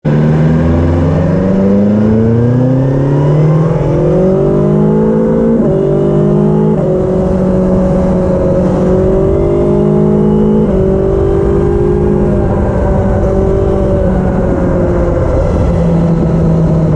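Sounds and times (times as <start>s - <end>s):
motorcycle engine revving: 0.1s - 16.9s.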